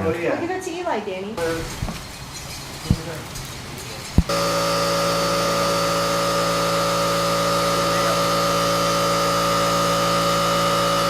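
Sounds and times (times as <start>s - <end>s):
electric air compressor humming: 1.4s - 11.0s.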